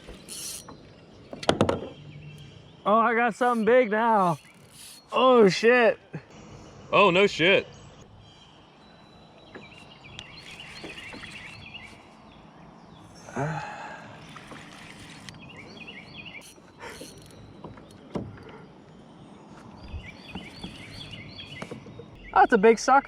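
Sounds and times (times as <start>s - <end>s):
rush of water on kayak hull: 14.2s - 15.3s.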